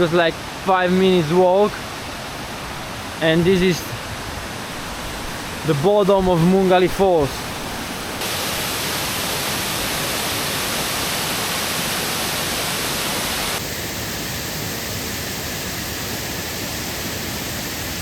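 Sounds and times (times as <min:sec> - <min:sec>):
waterfall splashing into pool: 0:05.6 - 0:13.6.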